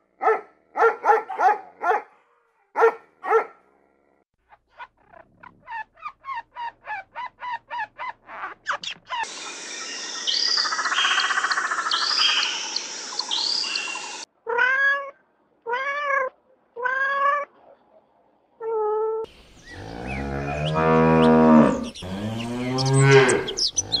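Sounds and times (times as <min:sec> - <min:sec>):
steady hiss: 0:09.3 - 0:14.2
peacock calls: 0:19.3 - 0:24.0
cattle mooing: 0:19.7 - 0:24.0
squirrel chirping: 0:20.6 - 0:24.0.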